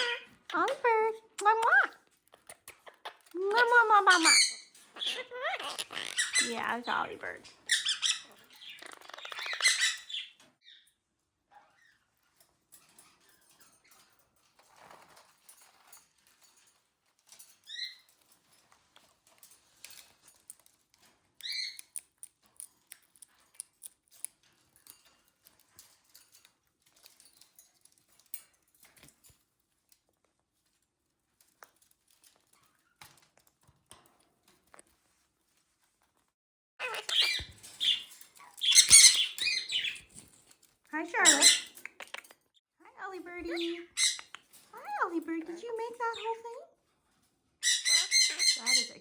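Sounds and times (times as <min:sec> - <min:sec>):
parrots clicking and rustling: 0:00.0 - 0:10.6, 0:11.2 - 0:42.6, 0:43.2 - 0:49.0
parrot high chirps: 0:00.0 - 0:10.9, 0:36.8 - 0:40.2, 0:41.0 - 0:42.3, 0:43.0 - 0:46.7, 0:47.6 - 0:49.0.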